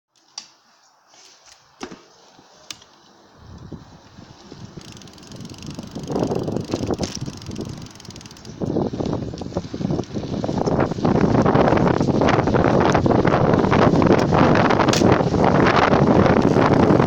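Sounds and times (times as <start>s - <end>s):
bicycle wheel and road noise: 0.2s - 17.0s
sharp clicks: 4.8s - 8.6s.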